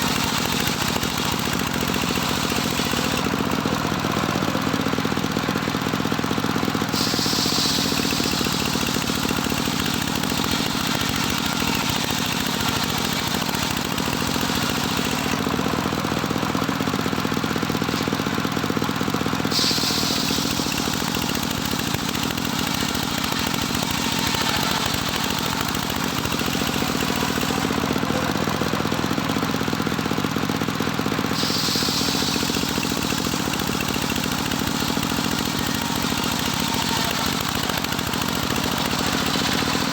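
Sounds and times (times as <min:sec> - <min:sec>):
saw blade cutting wood: 0:00.0 - 0:03.3, 0:06.8 - 0:15.5, 0:19.4 - 0:28.4, 0:31.3 - 0:39.9
circular saw engine running: 0:00.0 - 0:39.9.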